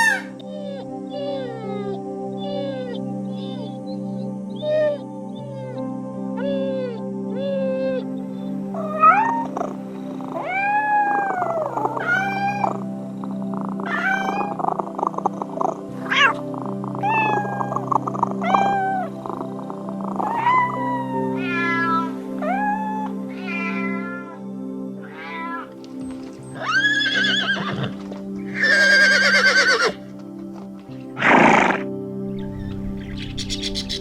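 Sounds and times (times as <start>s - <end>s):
background music: 0.0s - 34.0s
cat meowing: 17.0s - 17.8s, 20.2s - 24.4s, 25.1s - 25.6s, 26.6s - 30.0s.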